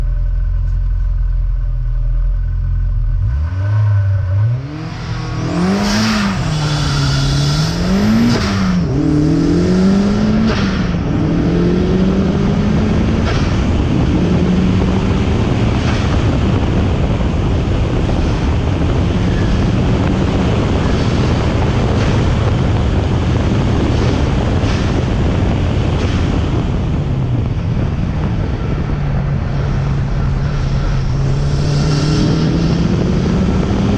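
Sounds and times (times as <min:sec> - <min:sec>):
car engine revving and accelerating: 0:03.1 - 0:33.9
wind noise: 0:03.3 - 0:33.9.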